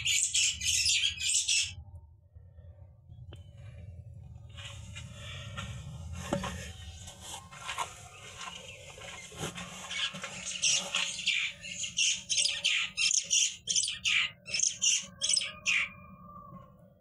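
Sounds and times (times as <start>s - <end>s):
bird squawking: 0.0s - 1.8s, 8.5s - 16.0s
steady low hum: 0.0s - 14.4s.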